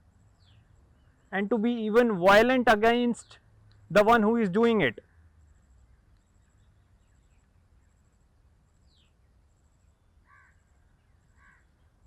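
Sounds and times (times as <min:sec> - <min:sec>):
faint bird calls: 0:10.2 - 0:10.7, 0:11.3 - 0:11.7.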